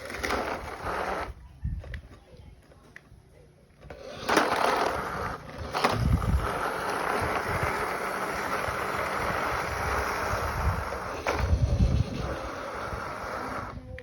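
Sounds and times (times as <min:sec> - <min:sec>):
toy truck driving: 0:00.0 - 0:14.0
wind on microphone: 0:05.1 - 0:14.0.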